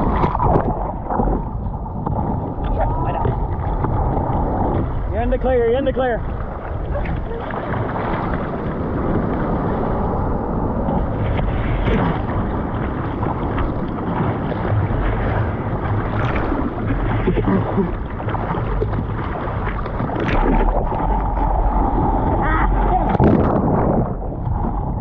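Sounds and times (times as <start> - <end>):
ocean surf and churning water: 0.0 - 25.0
wind buffeting microphone: 0.0 - 25.0.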